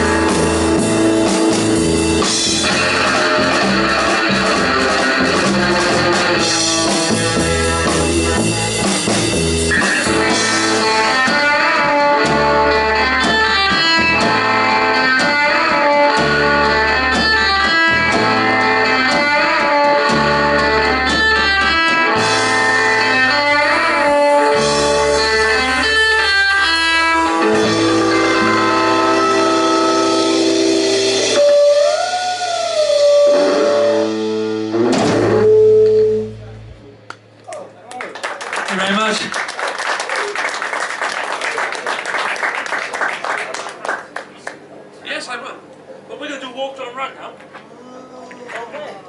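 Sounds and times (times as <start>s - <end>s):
electric guitar melody: 0.0s - 37.4s
drum kit: 0.0s - 37.7s
bass guitar: 0.0s - 37.8s.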